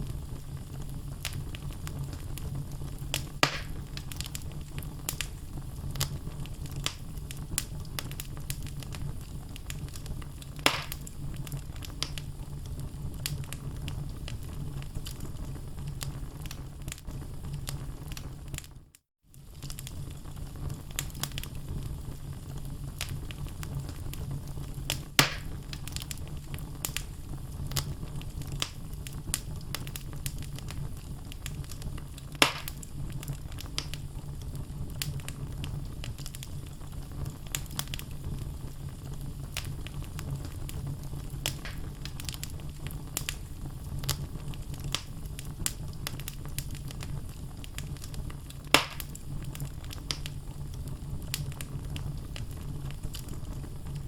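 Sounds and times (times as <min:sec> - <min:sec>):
fire crackling: 0:00.0 - 0:54.0
low rumble of fire: 0:00.0 - 0:54.0
loud pops from logs: 0:03.4 - 0:03.8, 0:10.6 - 0:11.1, 0:25.2 - 0:25.6, 0:32.4 - 0:32.8, 0:41.5 - 0:41.9, 0:48.8 - 0:49.1.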